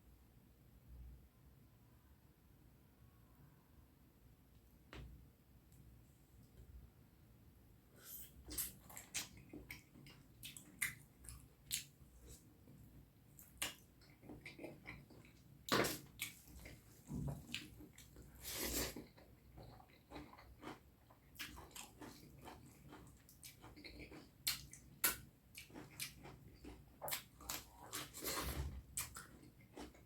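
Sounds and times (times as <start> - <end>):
wet chewing sounds: 8.0 - 30.0.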